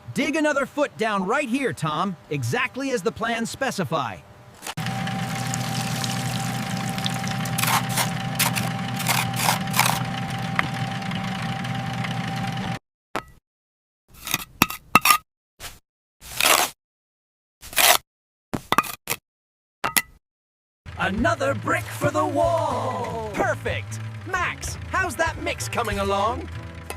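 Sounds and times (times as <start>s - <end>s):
low hum: 4.7s - 12.8s.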